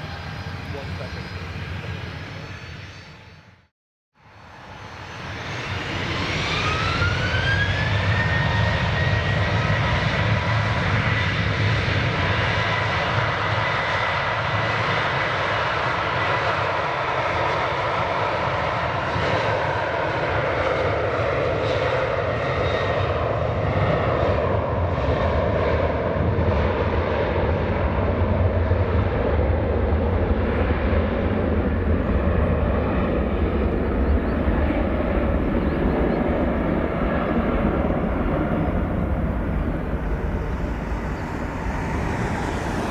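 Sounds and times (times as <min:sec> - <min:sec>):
loud jet engine noise: 0:00.0 - 0:42.9
jet engines spooling up: 0:04.5 - 0:10.2, 0:33.5 - 0:42.9.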